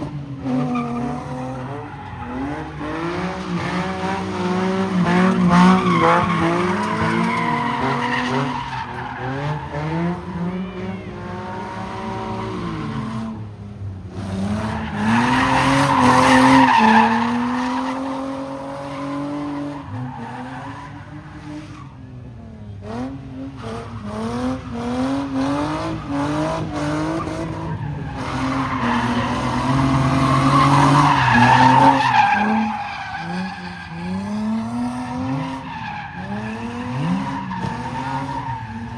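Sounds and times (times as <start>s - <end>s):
car engine revving: 22.2s - 38.9s.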